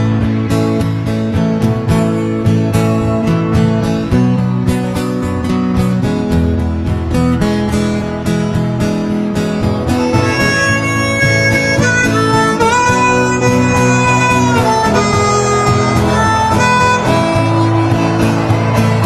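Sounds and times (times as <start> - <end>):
strummed acoustic guitar: 0.0 - 19.0
harmonica bending notes: 9.8 - 19.0.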